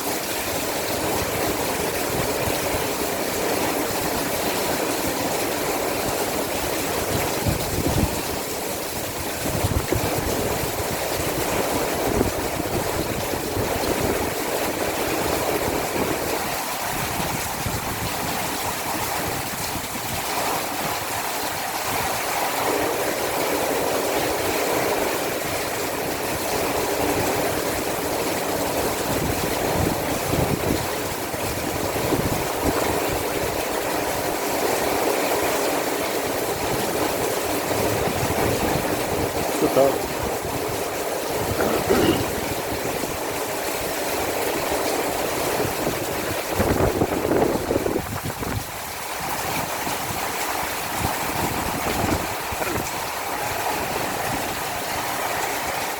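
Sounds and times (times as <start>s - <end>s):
heavy rain hissing: 37.6s - 44.4s.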